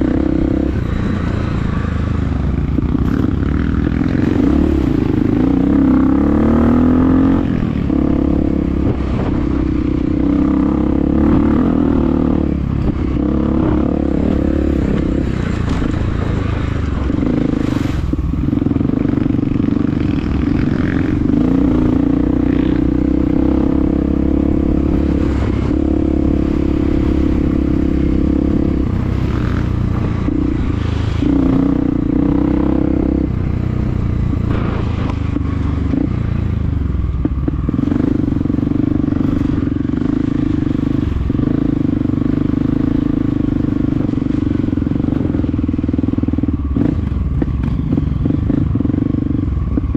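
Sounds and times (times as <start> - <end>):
dirt bike engine revving: 0.0 - 36.5.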